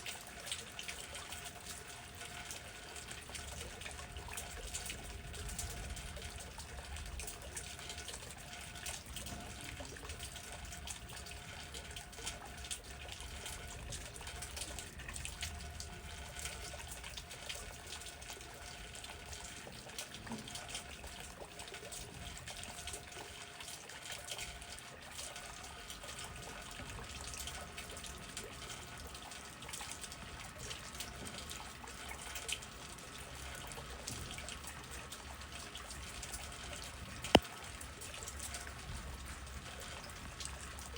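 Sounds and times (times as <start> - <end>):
rain falling: 3.0 - 17.6.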